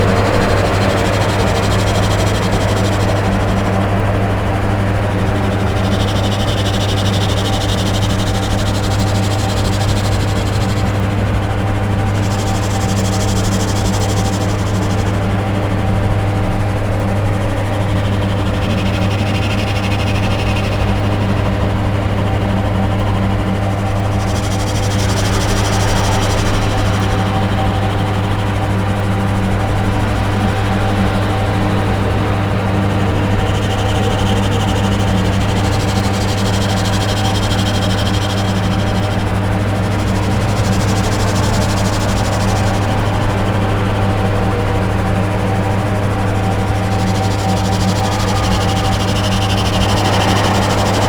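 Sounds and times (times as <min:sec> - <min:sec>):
dark ambient electronic drone: 0:00.0 - 0:51.0
higher rasping noise band: 0:23.9 - 0:51.0.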